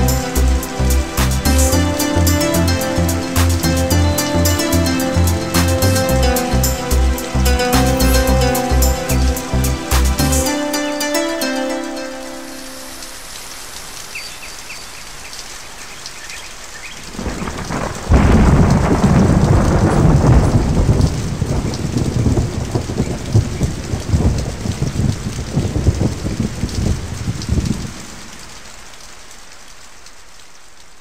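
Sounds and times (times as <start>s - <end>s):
steady rain hissing: 0.0s - 31.0s
thunder rumbling and crackling: 17.0s - 28.4s.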